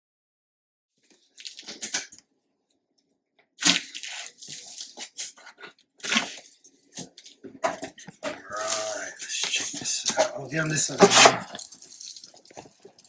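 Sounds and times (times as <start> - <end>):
cardboard rustling and tearing: 3.6 - 7.1.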